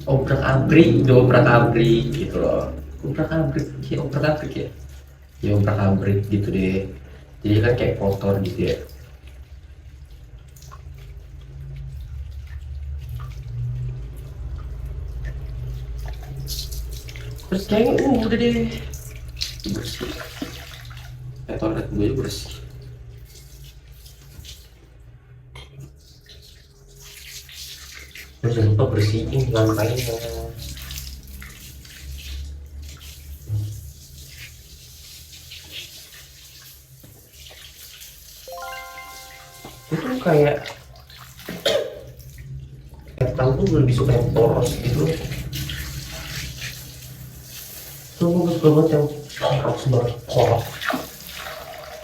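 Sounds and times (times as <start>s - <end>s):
water running: 0.0s - 25.2s, 25.9s - 52.0s
water drips plinking: 38.5s - 43.2s.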